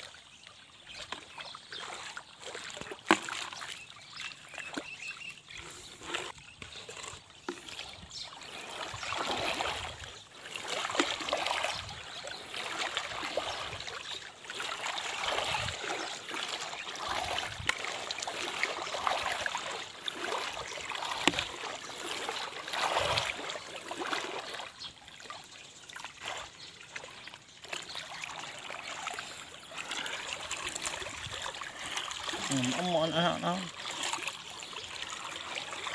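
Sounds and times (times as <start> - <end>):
river water splashing: 0.0 - 35.9.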